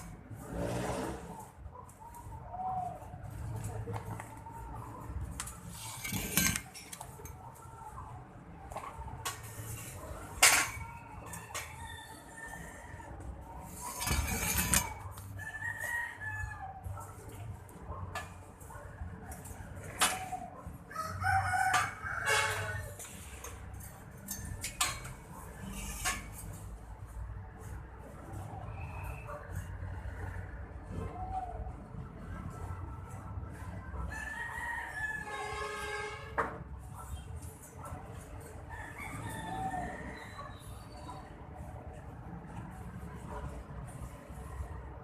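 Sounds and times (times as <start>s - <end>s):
metal clattering and scraping: 5.3s - 7.4s, 9.2s - 11.8s, 13.6s - 15.3s, 21.7s - 27.1s
rooster crowing: 11.2s - 13.3s, 14.0s - 16.9s, 20.9s - 23.0s, 34.1s - 36.2s, 38.7s - 40.6s.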